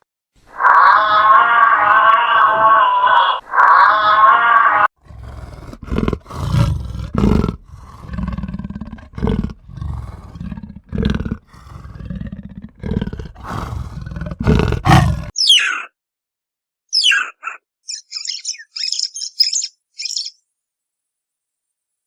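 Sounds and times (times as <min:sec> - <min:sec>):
animal growling: 0:04.9 - 0:15.4.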